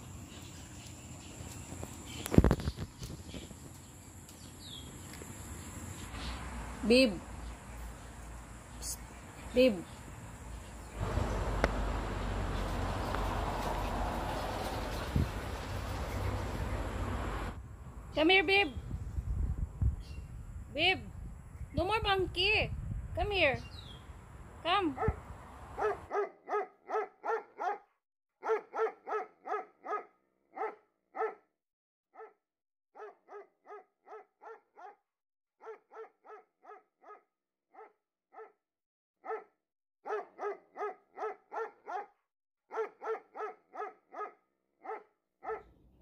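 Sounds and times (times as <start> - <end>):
dog barking: 25.0 - 25.2, 25.8 - 31.5, 32.2 - 32.4, 33.0 - 35.0, 35.6 - 38.6, 39.2 - 45.7.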